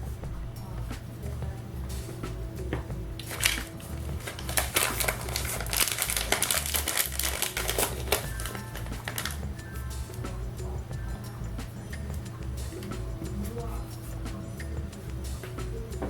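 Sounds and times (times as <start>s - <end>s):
background music with bass beat: 0.0s - 16.0s
small clicks taps and crinkling: 3.2s - 9.4s.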